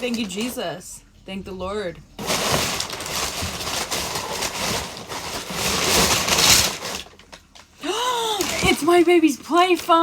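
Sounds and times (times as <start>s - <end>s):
packaging tearing and crinkling: 2.2s - 7.7s.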